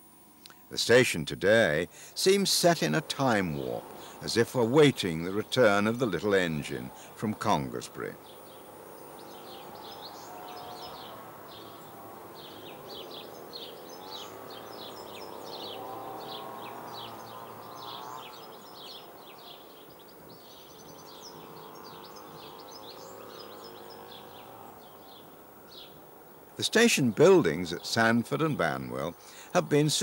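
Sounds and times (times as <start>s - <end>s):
outdoor background hiss: 0.0s - 30.0s
small birds chirping: 1.5s - 30.0s.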